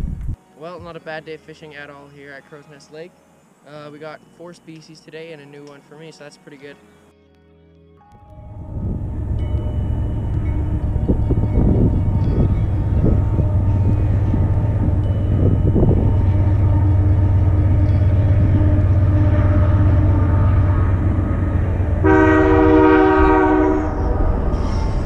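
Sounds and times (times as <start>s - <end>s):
diesel engine drone: 8.2s - 25.0s
freight train rumbling past: 8.4s - 25.0s.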